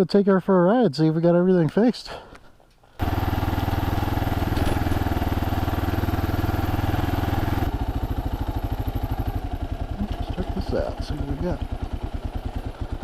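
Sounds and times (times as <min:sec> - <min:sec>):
motorcycle engine running: 0:03.0 - 0:13.0.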